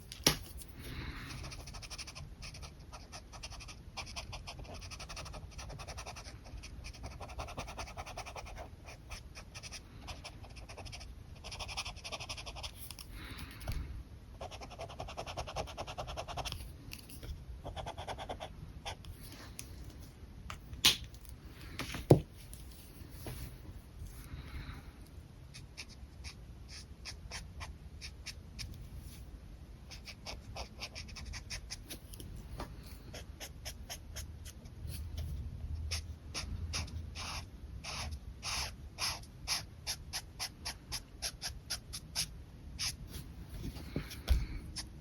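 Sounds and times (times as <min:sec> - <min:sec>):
marker scratching across paper: 0:29.9 - 0:31.8, 0:35.9 - 0:43.0.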